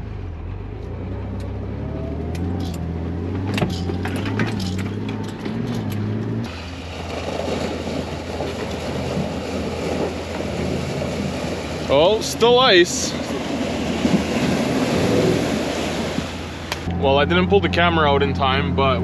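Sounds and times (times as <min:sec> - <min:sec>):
off-road vehicle engine droning: 0:00.0 - 0:19.0
body and suspension rattles: 0:00.3 - 0:12.3
rough noisy rush: 0:03.4 - 0:19.0.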